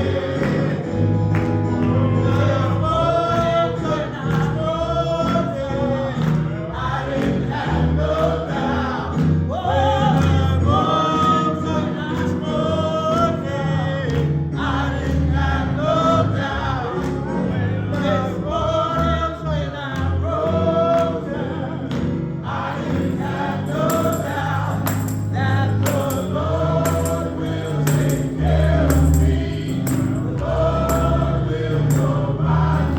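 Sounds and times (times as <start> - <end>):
gospel choir singing: 0.0 - 32.9
percussion beat: 22.8 - 32.9
tambourine: 23.0 - 32.9.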